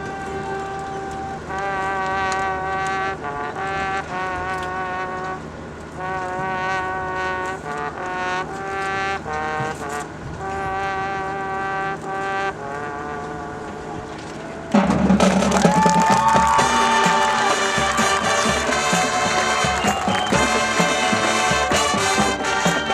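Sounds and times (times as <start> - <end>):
marching band playing held chords: 0.0 - 22.9.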